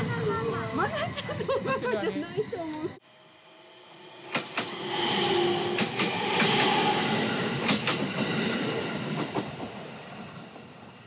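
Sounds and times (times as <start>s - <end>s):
train wheels clacking over rail joints: 4.3s - 4.8s, 5.6s - 9.9s.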